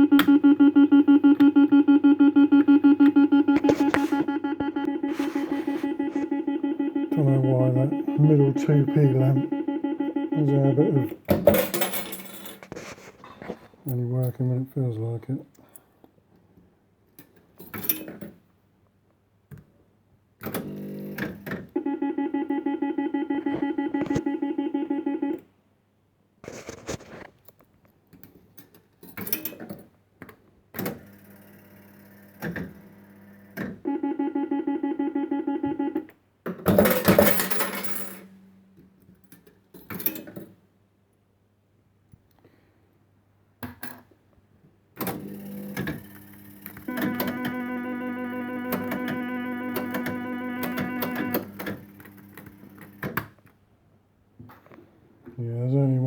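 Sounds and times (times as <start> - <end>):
fast-pulsing electronic tone: 0.0 - 11.2, 46.9 - 51.5.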